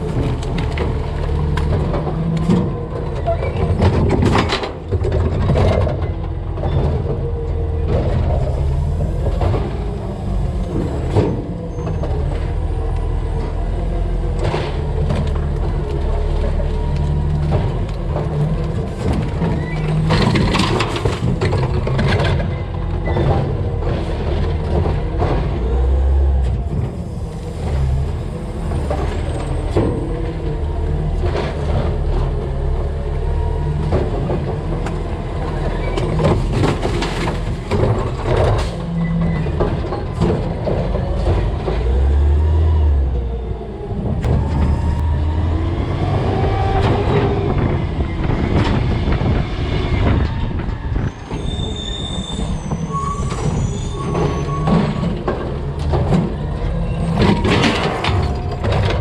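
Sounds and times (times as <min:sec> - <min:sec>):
garbage truck engine running: 0:00.0 - 0:59.0
garbage clanking in hopper: 0:14.3 - 0:42.7, 0:52.4 - 0:59.0
sliding metal squeals: 0:38.7 - 0:40.2, 0:50.0 - 0:55.3, 0:56.4 - 0:59.0.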